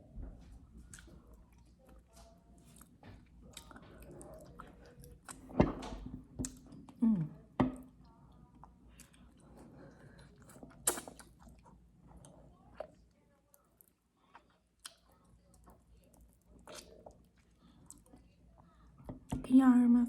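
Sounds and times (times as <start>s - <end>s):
person chewing: 0.8s - 5.5s, 8.6s - 18.2s.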